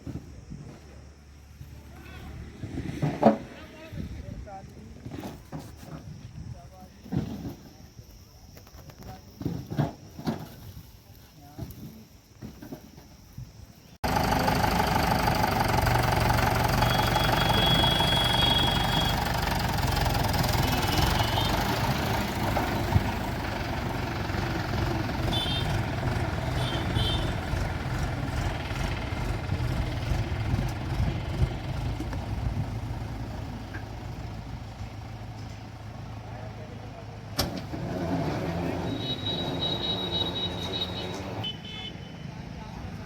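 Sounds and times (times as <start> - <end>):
tractor diesel engine running: 14.0 - 41.4.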